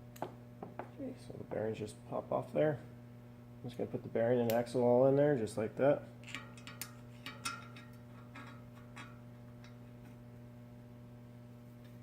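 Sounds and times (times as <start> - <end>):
metal parts clicking and tapping: 6.2 - 9.8.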